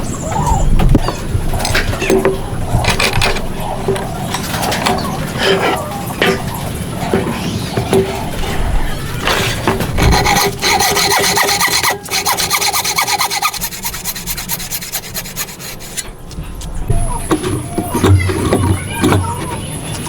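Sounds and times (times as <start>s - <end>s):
hand tool scraping wood: 9.2s - 16.7s.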